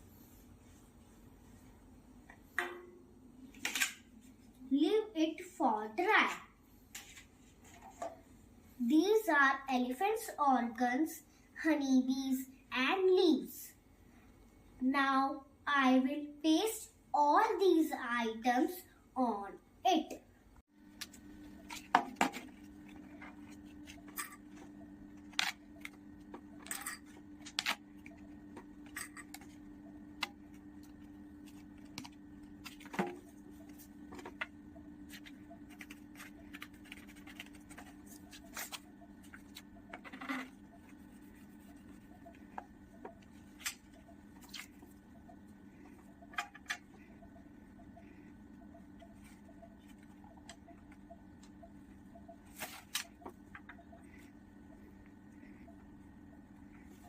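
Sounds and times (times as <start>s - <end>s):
low hum: 20.8s - 57.0s
paper rustling: 35.1s - 42.0s.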